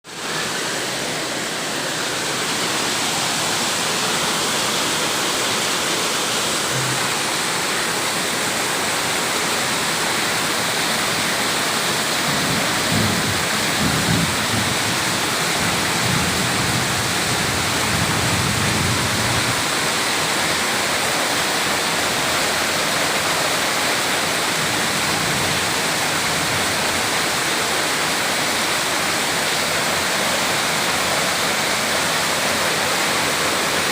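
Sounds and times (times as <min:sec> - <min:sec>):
rain pouring: 0:00.0 - 0:33.9.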